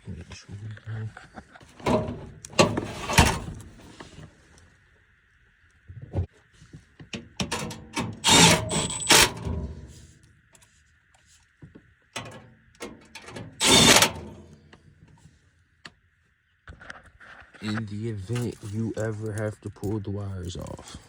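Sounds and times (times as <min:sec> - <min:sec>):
metal scraping: 0:01.7 - 0:04.2, 0:07.5 - 0:10.1, 0:13.2 - 0:14.6
metal clicks and knocks: 0:01.8 - 0:03.8.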